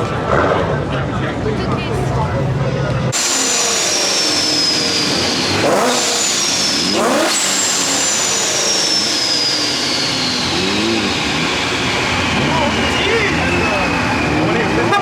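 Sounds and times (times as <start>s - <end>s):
car engine revving: 3.0s - 15.0s
high whine falling in pitch: 3.2s - 14.9s.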